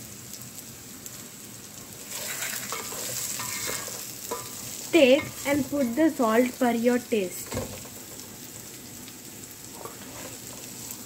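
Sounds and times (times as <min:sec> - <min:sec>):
vegetables sizzling in a pot: 0:00.0 - 0:11.0
wooden spoon stirring and scraping pot: 0:02.0 - 0:06.6, 0:09.7 - 0:11.0.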